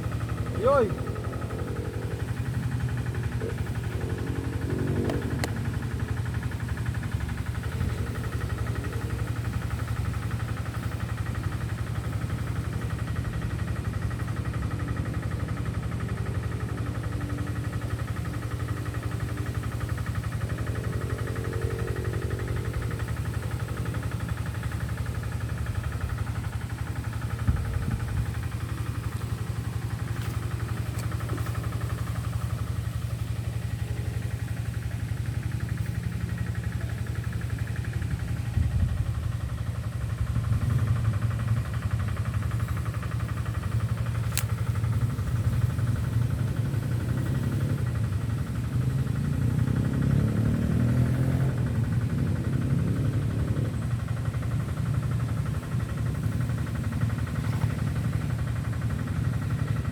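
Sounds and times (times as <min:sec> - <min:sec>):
engine humming: 0:00.0 - 0:59.9.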